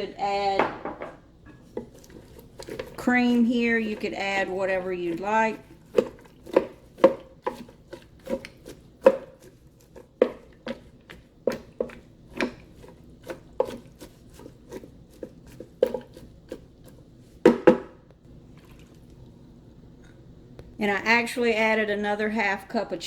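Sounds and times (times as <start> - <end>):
utensil knocking on cooking pot: 0.5 - 1.6, 17.4 - 18.0.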